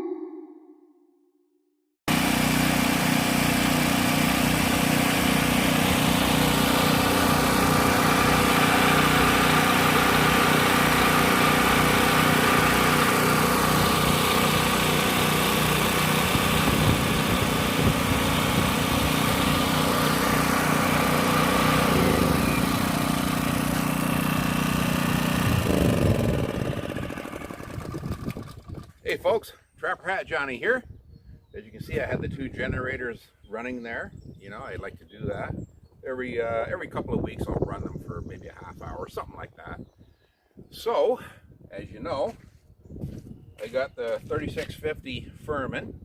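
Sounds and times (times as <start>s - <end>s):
portable generator engines running: 2.1s - 29.2s.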